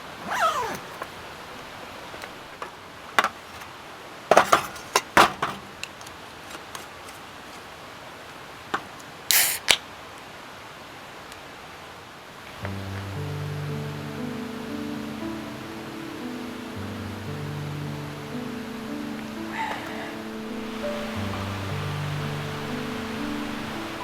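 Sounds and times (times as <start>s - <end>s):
squeal falling in pitch: 0.3s - 0.8s
hissing rustle: 9.3s - 9.8s.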